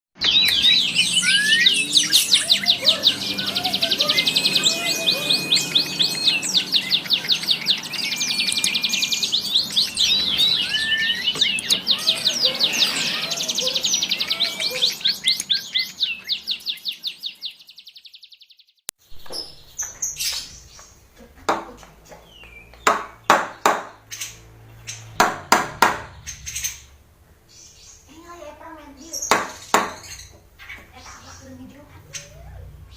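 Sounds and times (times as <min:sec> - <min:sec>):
bulbul calling: 0:00.2 - 0:17.7.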